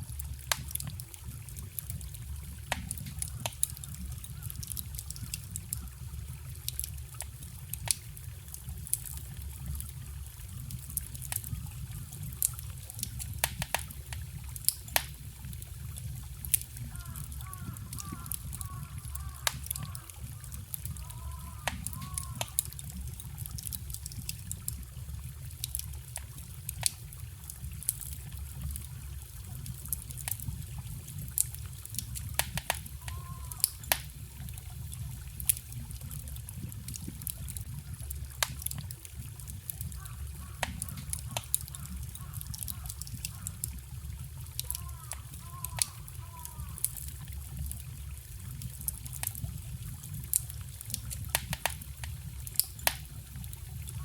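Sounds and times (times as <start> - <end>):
water gurgling: 0.0 - 54.0
wood fire crackling: 0.0 - 54.0
forest stream rushing: 16.3 - 22.8.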